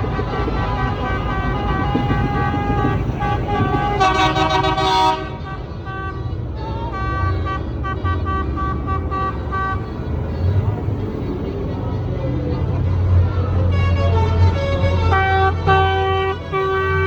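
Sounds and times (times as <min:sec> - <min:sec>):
loud horn toot: 0:00.0 - 0:10.2, 0:13.6 - 0:17.0
tractor engines rumbling: 0:00.0 - 0:17.0.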